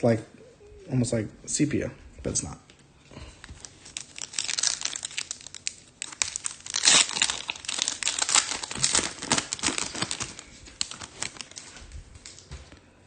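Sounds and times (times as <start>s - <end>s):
foil wrapper tearing and crinkling: 3.5s - 11.8s.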